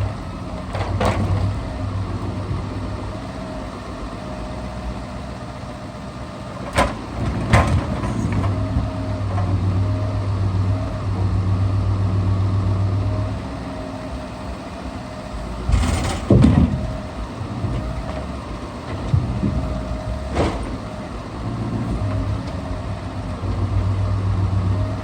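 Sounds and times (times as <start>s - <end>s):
truck engine humming: 0.0s - 25.0s
logs knocking together: 15.7s - 17.0s.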